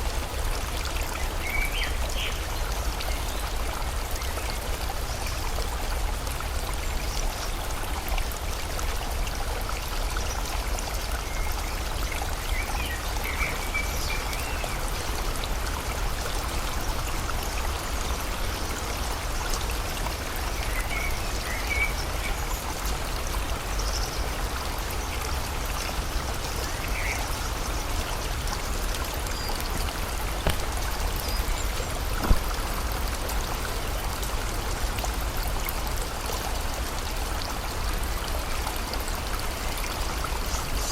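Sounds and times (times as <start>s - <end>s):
rain: 0.0s - 40.9s
river flowing: 0.0s - 40.9s
sharp tap: 30.4s - 30.9s, 32.2s - 32.5s.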